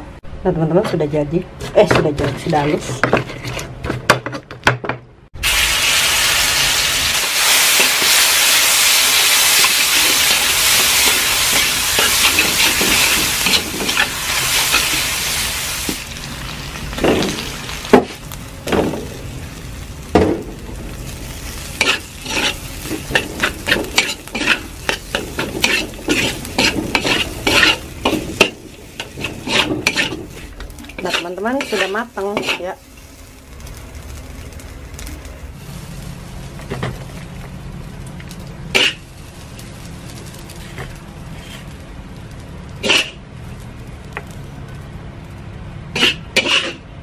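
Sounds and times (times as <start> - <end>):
metal spatula scraping wok: 1.6 - 4.0, 7.4 - 15.8, 20.8 - 33.1, 42.8 - 43.2, 45.9 - 46.9
paste sizzling in hot wok: 5.4 - 37.8.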